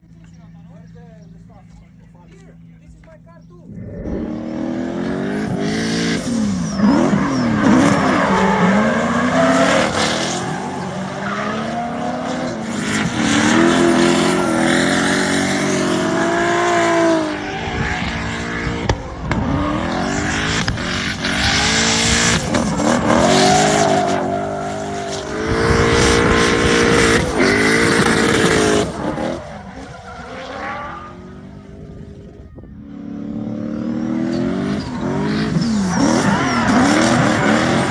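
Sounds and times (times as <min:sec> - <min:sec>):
car engine revving: 0:02.6 - 0:37.9
tyres squealing: 0:06.0 - 0:17.5, 0:21.3 - 0:31.1, 0:33.0 - 0:37.9.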